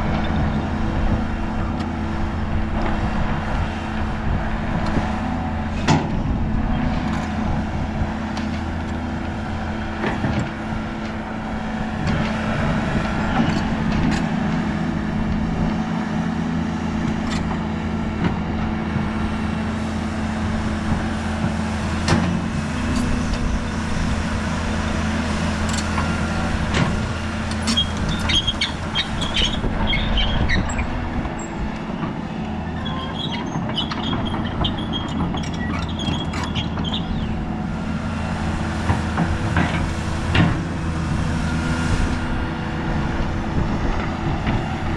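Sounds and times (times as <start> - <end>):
diesel excavator engine running: 0.0 - 44.9
high-pitched metallic squeals: 27.1 - 31.7, 32.6 - 37.4.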